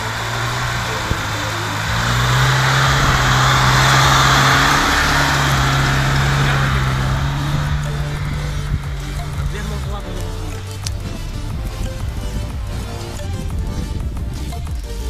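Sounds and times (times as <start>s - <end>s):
car engine running hard: 0.0s - 15.0s.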